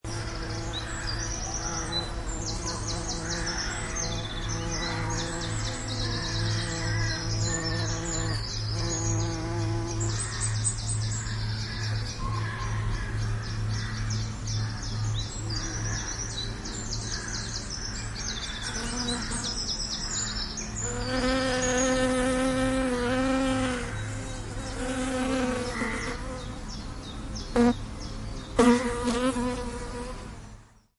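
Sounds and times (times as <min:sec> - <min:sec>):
birds chirping: 0:00.0 - 0:30.9
bees buzzing: 0:00.1 - 0:10.5, 0:20.7 - 0:26.8, 0:27.5 - 0:27.9, 0:28.6 - 0:30.3.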